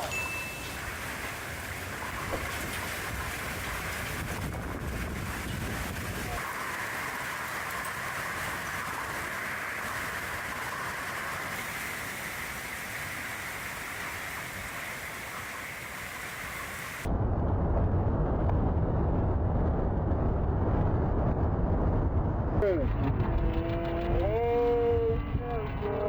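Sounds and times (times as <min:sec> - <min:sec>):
heavy rain hissing: 0:00.0 - 0:17.1
deep rumbling noise: 0:00.6 - 0:11.5, 0:17.0 - 0:26.0.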